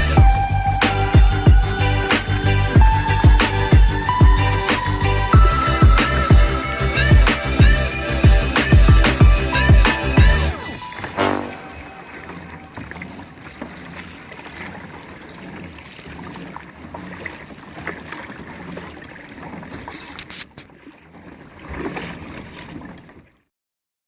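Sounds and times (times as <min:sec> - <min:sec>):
water wash: 0:00.0 - 0:23.4
small water splashes: 0:08.5 - 0:23.5.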